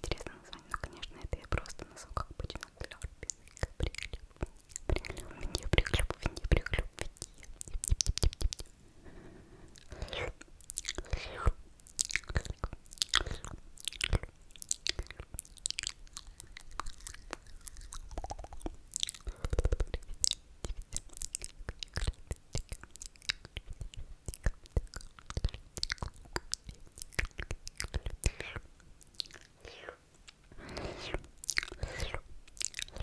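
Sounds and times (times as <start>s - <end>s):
wet mouth clicks and smacks: 0.0s - 8.8s, 9.8s - 33.0s.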